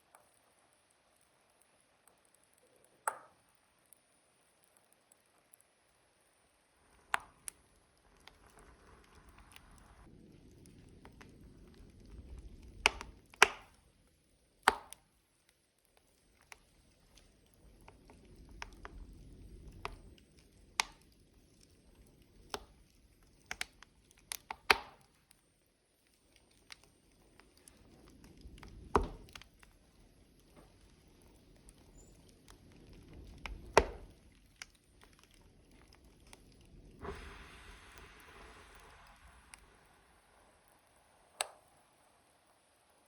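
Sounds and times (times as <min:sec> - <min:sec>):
wood fire crackling and popping: 0:00.0 - 0:43.0
low rumble of flames: 0:06.2 - 0:43.0.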